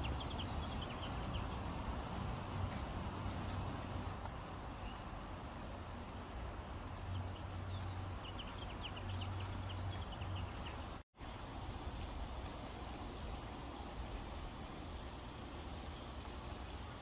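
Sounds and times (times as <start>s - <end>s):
small bird chirps: 0.0s - 1.7s, 7.1s - 11.0s
low hum and hiss: 0.0s - 17.0s.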